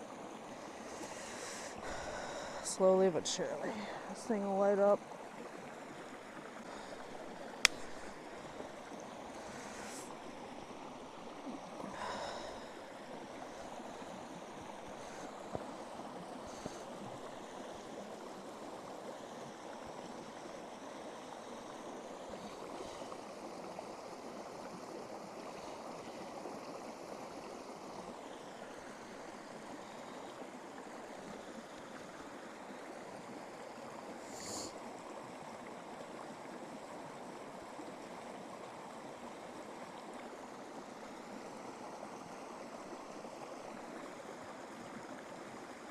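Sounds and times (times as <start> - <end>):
running water rushing: 0.0 - 45.9
faint clicks: 7.6 - 8.1.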